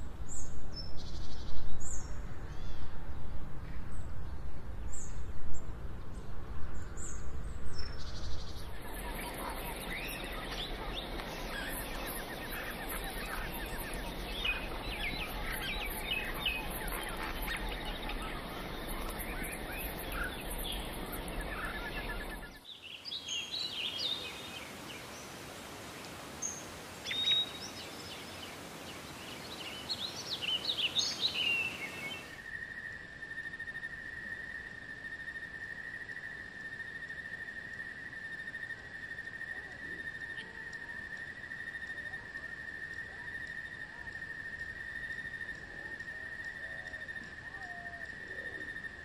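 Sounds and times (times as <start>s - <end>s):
high insect call: 8.0s - 49.0s
birds chirping and calling: 8.5s - 22.6s.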